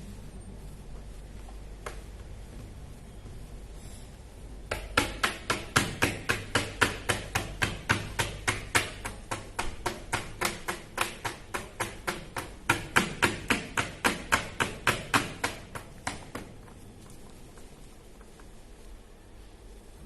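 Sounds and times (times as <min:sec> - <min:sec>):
faint hiss: 0:00.0 - 0:06.2, 0:15.2 - 0:20.0.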